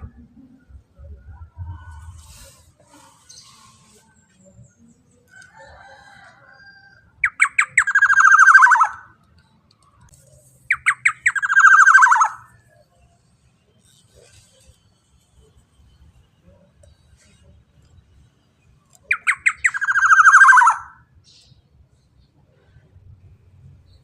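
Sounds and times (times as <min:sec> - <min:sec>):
bird giving harsh calls: 0:07.2 - 0:09.1, 0:10.7 - 0:12.5, 0:19.1 - 0:21.0.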